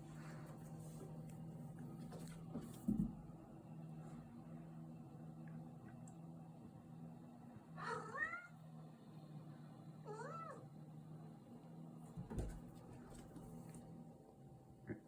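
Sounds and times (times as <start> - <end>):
cat meowing: 7.8 - 8.5, 10.1 - 10.6.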